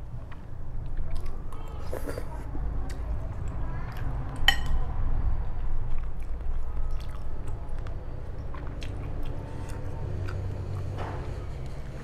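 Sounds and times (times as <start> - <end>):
low steady hum: 0.0 - 12.0
person chewing: 5.6 - 11.0.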